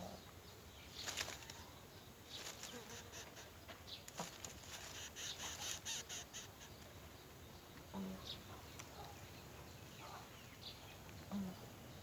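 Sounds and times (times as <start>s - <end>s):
rustling at a nest: 0.9s - 7.0s
scratchy bird calls: 0.9s - 7.0s.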